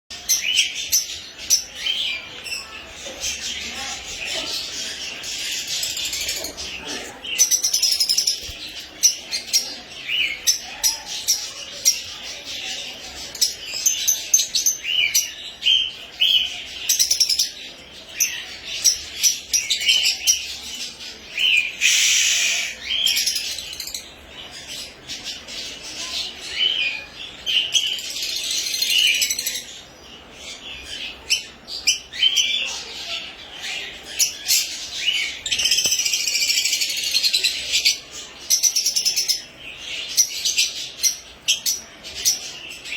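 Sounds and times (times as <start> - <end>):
lovebirds chirping: 0.1 - 42.9
harsh bird call: 21.6 - 23.1.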